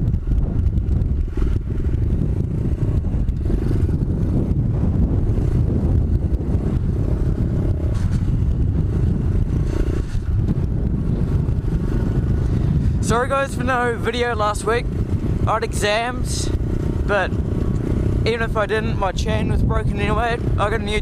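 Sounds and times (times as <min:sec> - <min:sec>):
small motorbike engine running: 0:00.0 - 0:13.0
wind rumble on microphone: 0:00.0 - 0:21.0.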